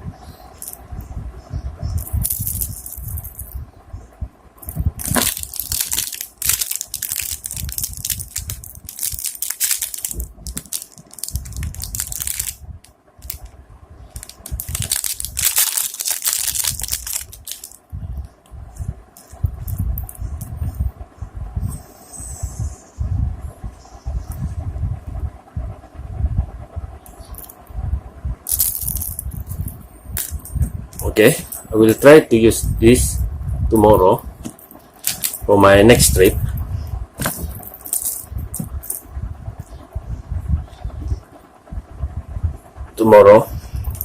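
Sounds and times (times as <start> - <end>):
plastic packaging crinkling: 4.6 - 12.6, 13.2 - 13.5, 14.2 - 17.8, 28.5 - 32.0, 34.4 - 36.4.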